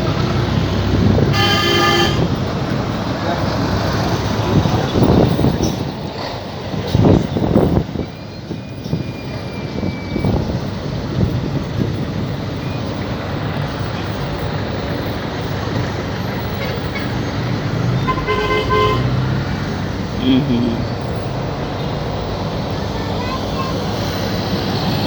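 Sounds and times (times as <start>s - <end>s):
lorry engine and traffic rumble: 0.0s - 25.0s.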